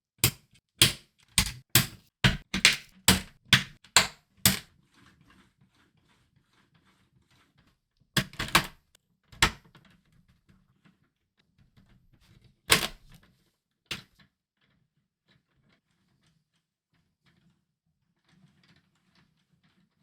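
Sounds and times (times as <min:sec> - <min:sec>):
plastic parts clacking together: 0:00.2 - 0:04.7, 0:08.2 - 0:08.8, 0:12.7 - 0:13.2.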